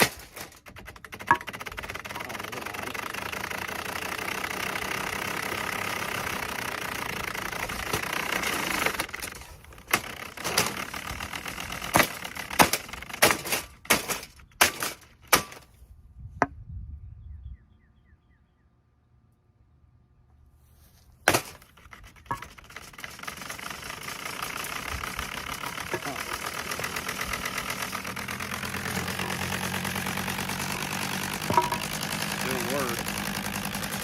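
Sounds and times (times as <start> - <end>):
hard blows smashing a fan: 0.0 - 2.0, 5.1 - 15.7, 21.2 - 34.0.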